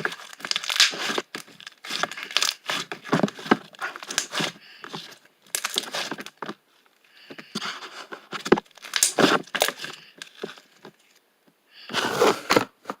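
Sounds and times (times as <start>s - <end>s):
material crinkling and rustling: 0.0s - 11.2s.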